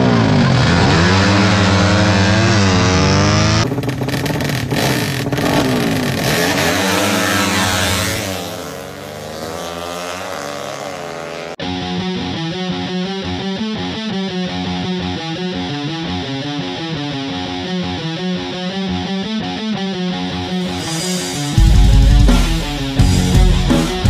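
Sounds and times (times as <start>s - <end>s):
racing motorcycle engines revving: 0.0s - 11.6s.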